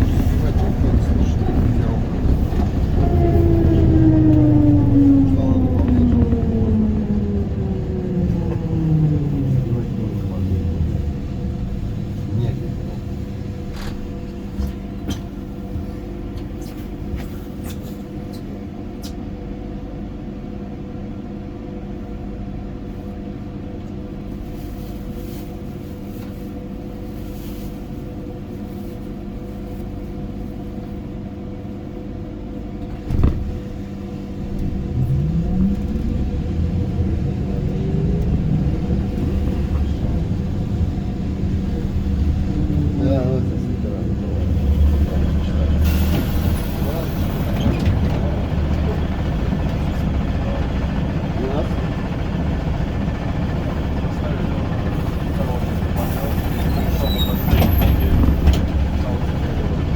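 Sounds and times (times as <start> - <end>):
traction motor whine rising: 1.6 - 12.0.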